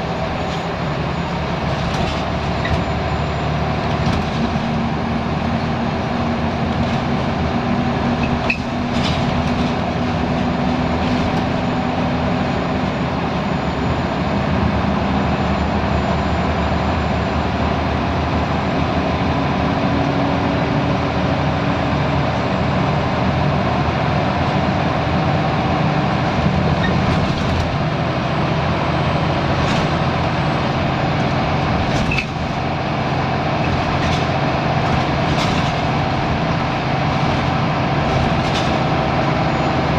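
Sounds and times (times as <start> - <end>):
bus body rattles and knocks: 0.0 - 13.2, 21.9 - 39.9
bus engine drone: 0.0 - 39.9.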